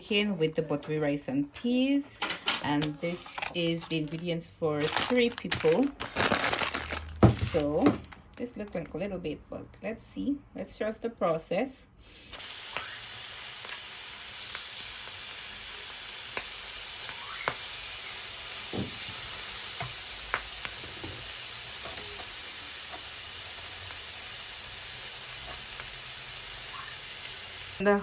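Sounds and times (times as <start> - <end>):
food sizzling in a pan: 12.4 - 28.0.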